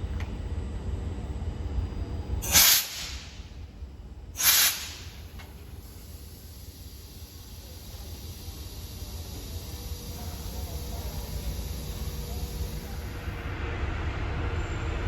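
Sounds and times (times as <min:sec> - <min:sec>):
compressed air hissing from train: 0:02.4 - 0:03.6, 0:04.4 - 0:13.4.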